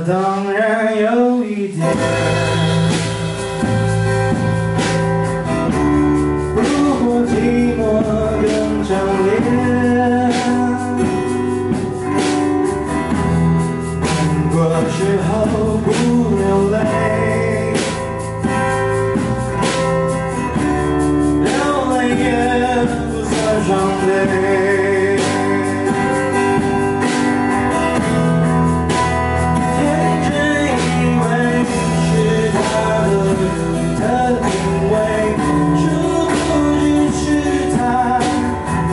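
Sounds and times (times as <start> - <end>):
man singing: 0.0 - 4.0, 5.7 - 12.2, 13.7 - 18.7, 21.2 - 27.1, 29.4 - 38.9
guitar accompaniment: 0.0 - 38.9
steady beat: 1.7 - 38.9.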